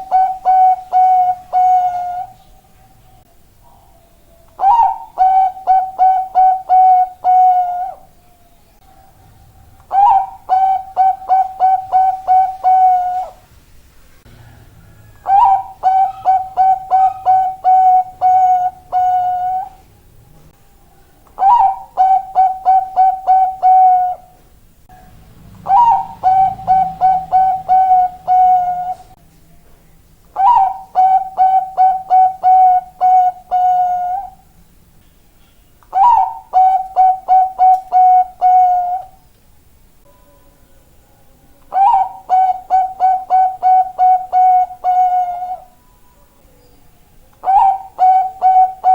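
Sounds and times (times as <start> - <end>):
zebra dove cooing: 0.0 - 2.4, 3.6 - 8.1, 8.8 - 13.4, 14.4 - 19.8, 21.2 - 24.4, 25.6 - 29.2, 30.4 - 34.4, 35.9 - 39.2, 41.6 - 45.8, 47.4 - 48.9.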